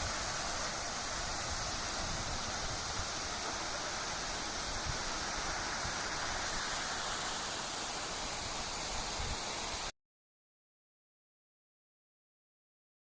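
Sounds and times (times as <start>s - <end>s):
falling water rushing: 0.0s - 9.9s.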